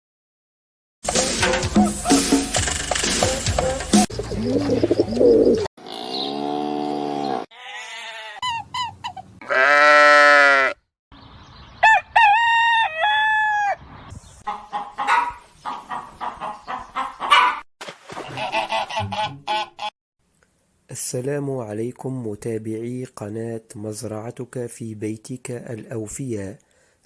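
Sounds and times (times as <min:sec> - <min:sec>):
hens clucking: 0:04.2 - 0:05.6, 0:14.4 - 0:17.6
roosters crowing: 0:09.4 - 0:10.8, 0:11.8 - 0:13.8, 0:14.5 - 0:17.6.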